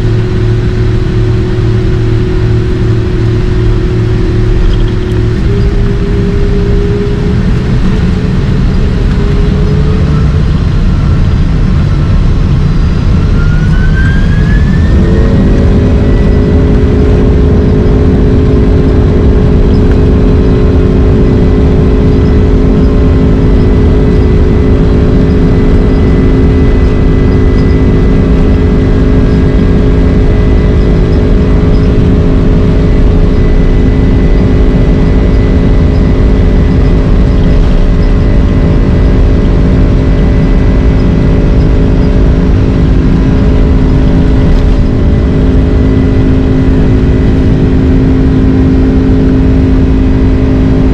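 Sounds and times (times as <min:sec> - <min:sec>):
jet engines spooling up: 0:00.0 - 0:50.9
loud steady rumble: 0:00.0 - 0:50.9.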